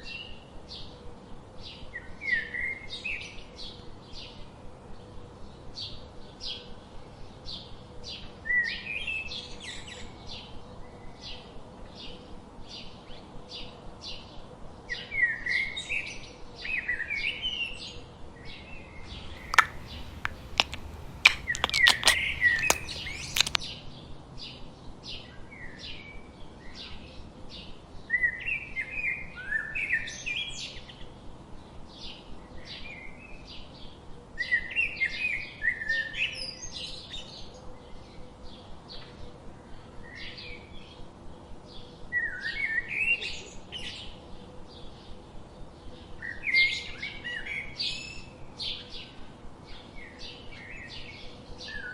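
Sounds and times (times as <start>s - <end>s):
small birds chirping: 19.0s - 23.6s
sharp clicks or taps: 19.4s - 23.6s.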